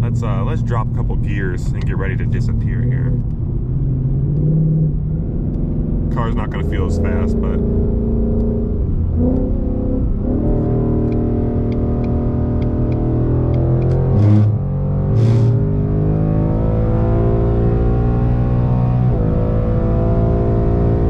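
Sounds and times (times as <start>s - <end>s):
car engine accelerating through gears: 0.0s - 21.0s.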